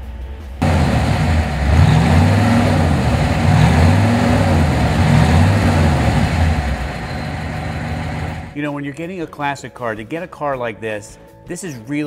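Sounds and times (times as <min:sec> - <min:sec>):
car engine exhaust note: 0:00.6 - 0:08.6.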